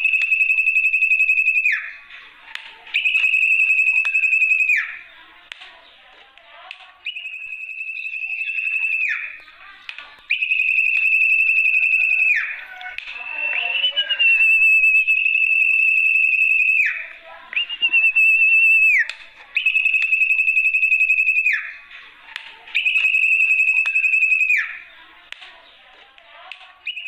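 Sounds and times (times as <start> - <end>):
high whistled bird call: 0.0 - 2.0, 2.9 - 5.1, 7.0 - 9.6, 10.2 - 21.8, 22.7 - 25.0.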